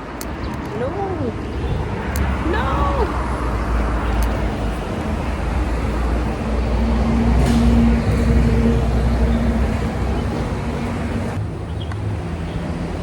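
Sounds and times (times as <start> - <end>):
traffic rumble: 0.0 - 13.0
vehicle engine humming: 0.0 - 13.0.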